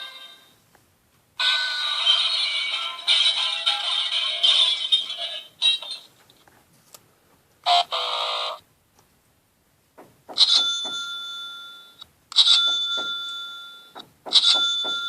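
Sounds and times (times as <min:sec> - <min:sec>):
bell-like doorbell chime: 0:10.4 - 0:15.0.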